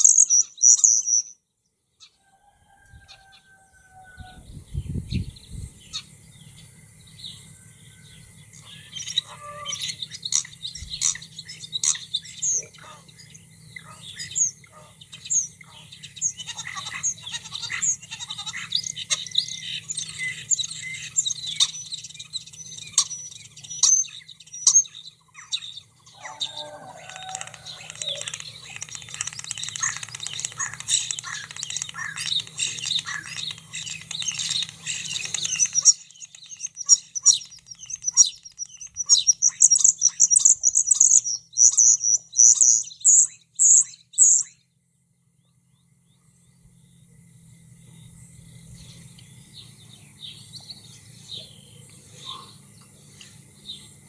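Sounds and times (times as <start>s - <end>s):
starling singing: 0.0s - 1.4s, 8.6s - 44.6s
garden birds chirping: 0.0s - 54.0s
steady low hum: 4.4s - 54.0s.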